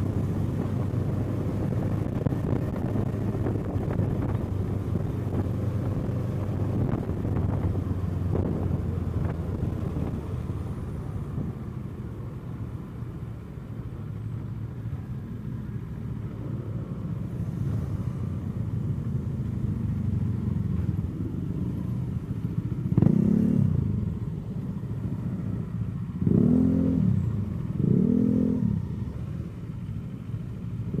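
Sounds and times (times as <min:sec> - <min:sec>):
motorcycle engine running: 0:00.0 - 0:31.0
motorcycle engine revving: 0:19.7 - 0:24.2, 0:25.1 - 0:29.8.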